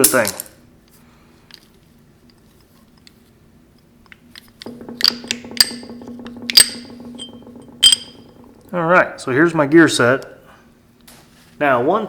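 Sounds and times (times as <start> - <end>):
steady low hum: 4.2 - 9.4
metal parts clinking: 4.3 - 8.6.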